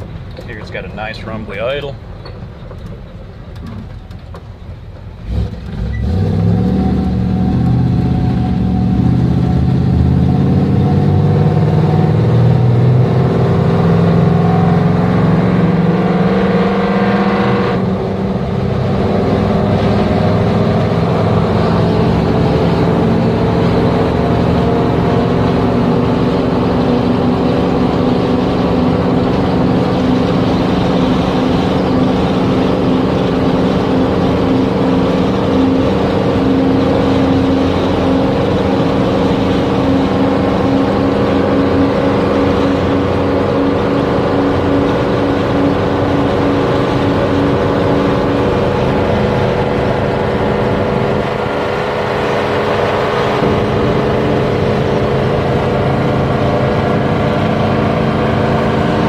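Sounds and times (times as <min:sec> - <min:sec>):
truck engine accelerating: 0:00.0 - 0:59.0
gear change: 0:19.0 - 0:59.0.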